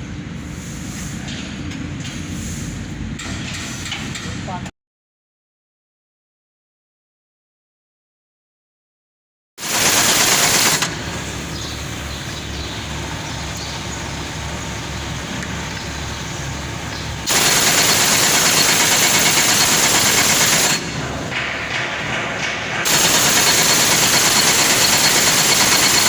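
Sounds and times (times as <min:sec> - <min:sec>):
engine running with heavy clatter: 0:09.6 - 0:26.0.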